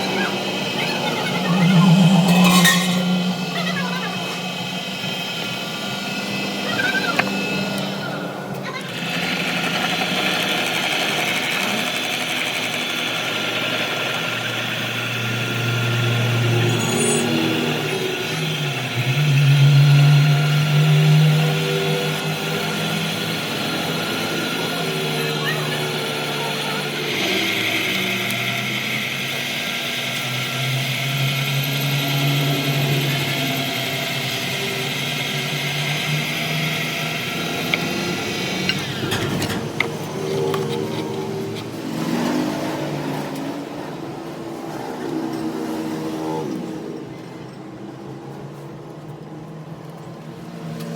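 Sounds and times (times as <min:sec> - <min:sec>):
machine humming: 0:00.0 - 0:11.5.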